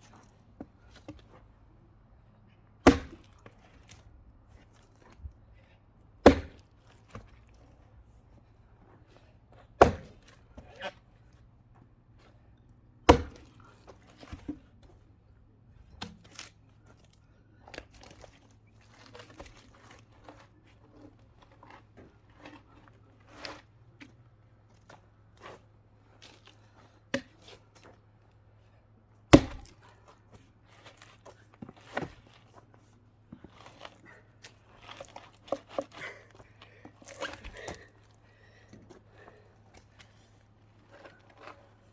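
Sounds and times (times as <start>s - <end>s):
axe chopping log: 2.8s - 3.4s, 6.2s - 7.4s, 9.8s - 10.9s, 13.1s - 13.6s, 16.0s - 16.3s, 27.1s - 27.6s, 29.3s - 29.9s, 37.1s - 37.9s.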